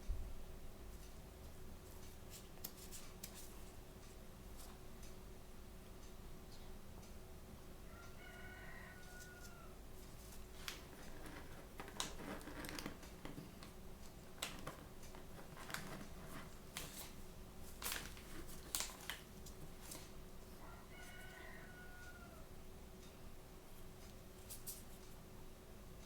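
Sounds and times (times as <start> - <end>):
packaging crinkling: 10.6 - 13.3, 14.4 - 20.0.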